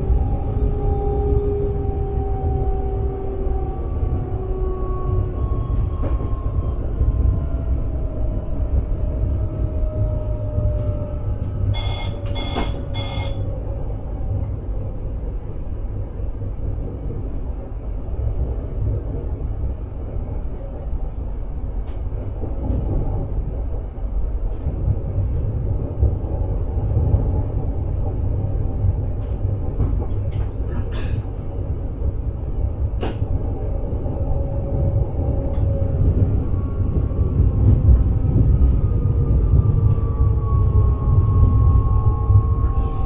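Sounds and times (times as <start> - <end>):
train wheels rumbling on rails: 0.0 - 43.0
two-tone electronic beeps: 11.8 - 13.4.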